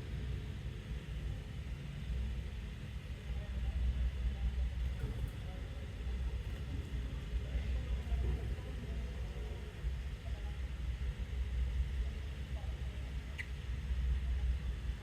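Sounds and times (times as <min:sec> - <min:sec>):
low uneven rumble: 0:00.0 - 0:15.0.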